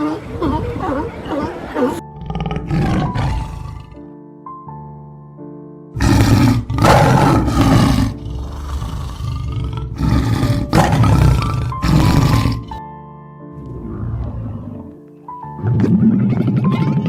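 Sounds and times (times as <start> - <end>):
large animal roaring: 0.0 - 4.1, 6.0 - 12.8, 13.6 - 15.0, 15.6 - 17.0
soft background music: 0.0 - 17.0.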